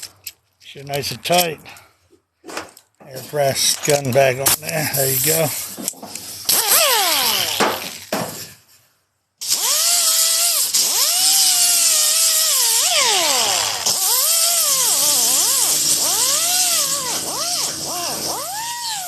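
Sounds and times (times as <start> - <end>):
die grinder grinding metal: 6.5 - 8.1, 9.4 - 19.0.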